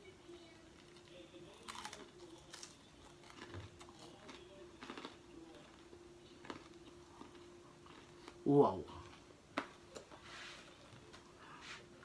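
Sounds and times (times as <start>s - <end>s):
faint steady hum: 0.0s - 12.0s
pizza crust crackling while chewing: 0.3s - 11.6s.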